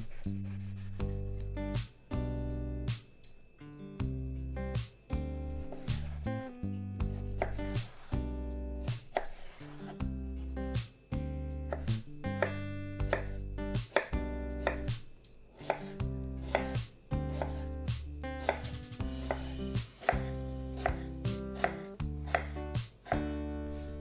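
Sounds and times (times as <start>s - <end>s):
knife chopping on cutting board: 7.1s - 8.0s, 11.7s - 15.0s, 15.6s - 17.7s, 18.4s - 24.0s
background music: 9.8s - 15.0s, 15.6s - 24.0s.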